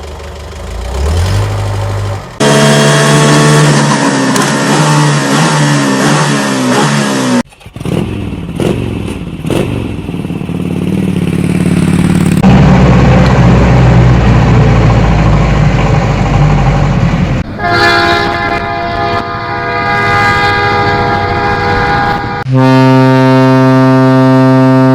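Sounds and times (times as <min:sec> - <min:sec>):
vehicle engine sounds: 0:00.0 - 0:24.9
multi-tone vehicle horn: 0:02.4 - 0:03.9, 0:17.4 - 0:24.9.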